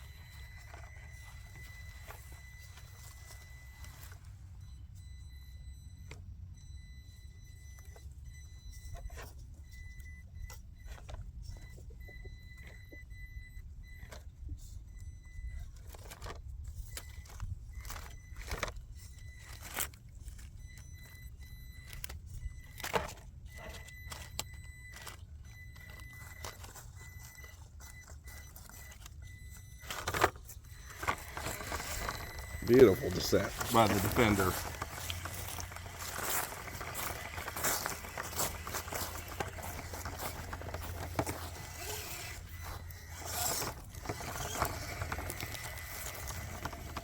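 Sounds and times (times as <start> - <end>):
tires clicking and knocking on stone: 15.6 - 47.0
small electric motor whine: 21.8 - 47.0.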